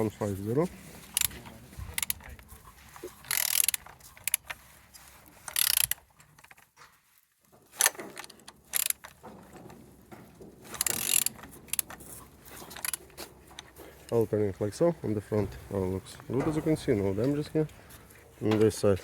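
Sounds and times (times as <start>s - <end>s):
ratchet wrench clicking: 2.0s - 2.2s, 3.2s - 4.5s, 5.5s - 6.0s, 7.8s - 9.1s, 10.8s - 12.0s, 12.7s - 13.0s.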